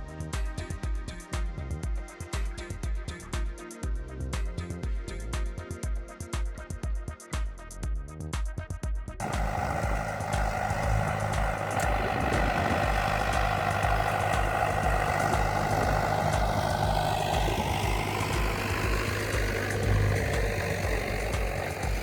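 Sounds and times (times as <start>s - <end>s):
tractor engine running: 9.2s - 22.0s.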